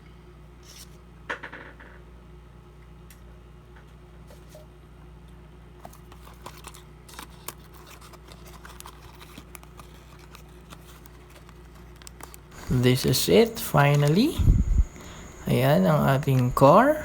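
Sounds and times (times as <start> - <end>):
steady low hum: 12.6 - 17.0.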